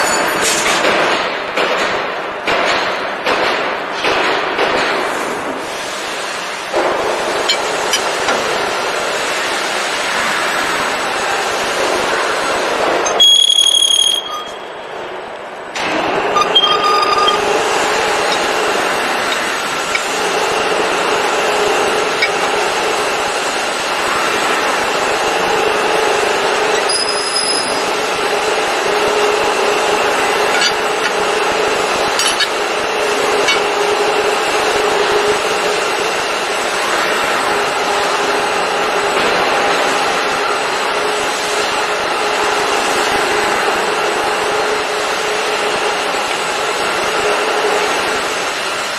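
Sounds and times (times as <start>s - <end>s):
press brake machine running: 4.9s - 48.9s
brief high whistle: 13.1s - 14.6s
high electronic beep: 13.1s - 14.8s, 16.4s - 17.5s.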